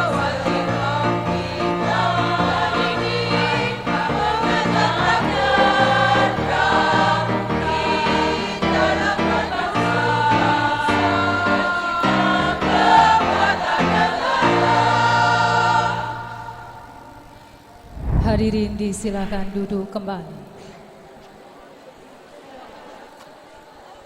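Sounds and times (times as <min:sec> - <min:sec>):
choir singing: 0:00.0 - 0:24.0
steady low notes: 0:17.7 - 0:20.5.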